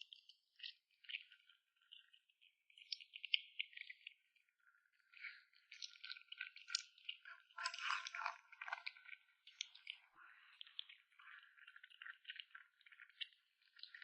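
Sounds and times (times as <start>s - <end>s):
kitten chewing and crunching food: 6.4s - 9.2s.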